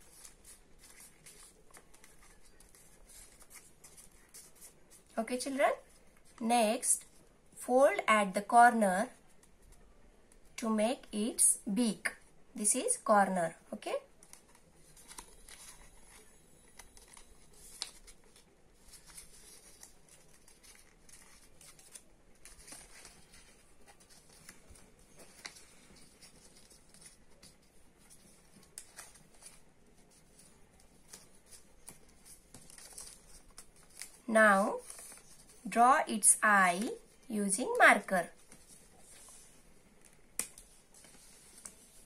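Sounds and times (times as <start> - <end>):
paper rustling and crinkling: 0.0 - 5.1, 14.1 - 35.7, 38.0 - 42.0.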